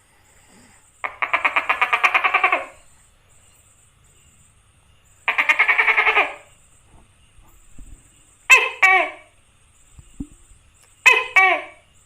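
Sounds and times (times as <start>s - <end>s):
gecko calling in fast pulses: 1.0s - 2.9s, 5.1s - 6.7s.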